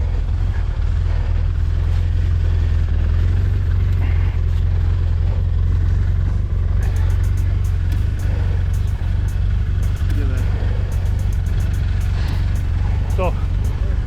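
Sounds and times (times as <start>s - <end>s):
engine running steadily: 3.6s - 14.0s.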